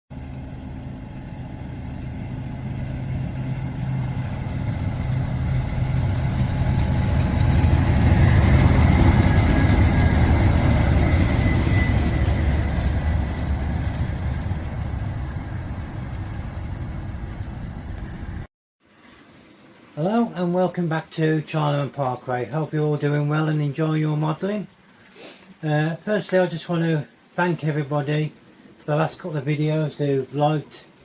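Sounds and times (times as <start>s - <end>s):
diesel locomotive engine running: 0.1s - 18.5s
faint high whine: 0.2s - 24.7s.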